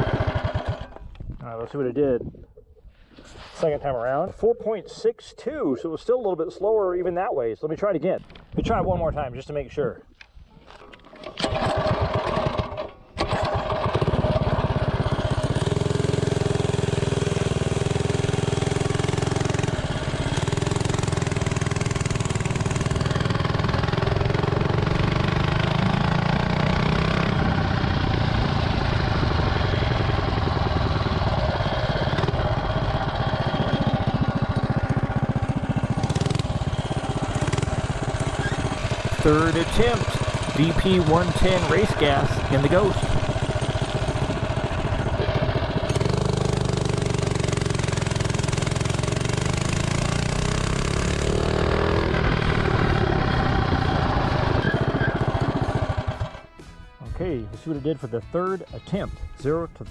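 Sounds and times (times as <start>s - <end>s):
mini bike engine running: 0.0s - 1.1s, 11.2s - 56.5s.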